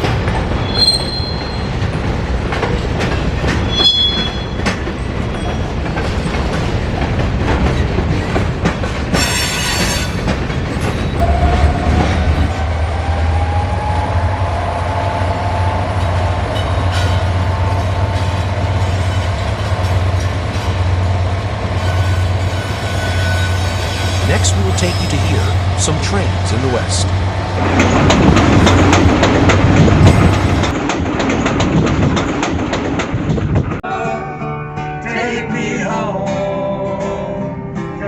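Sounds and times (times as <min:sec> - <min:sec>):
train wheels clicking on track: 0:00.0 - 0:13.2, 0:15.9 - 0:33.8
wheel squeal: 0:00.6 - 0:01.8, 0:03.6 - 0:04.8, 0:21.8 - 0:25.5.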